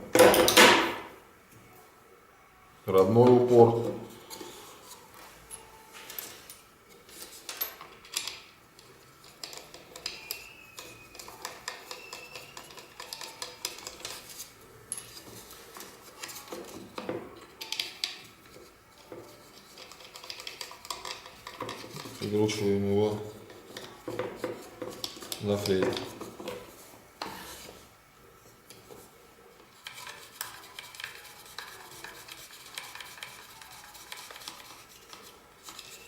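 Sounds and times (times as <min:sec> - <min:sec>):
faint squeak of sliding parts: 0:09.2 - 0:22.7, 0:29.8 - 0:36.0.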